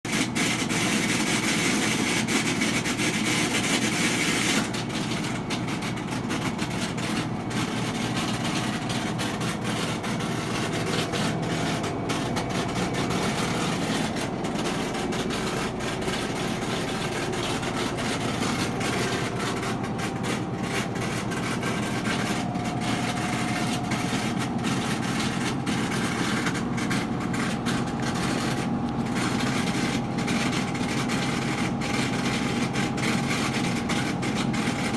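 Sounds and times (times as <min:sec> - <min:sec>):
washing machine spinning: 0:00.1 - 0:34.9.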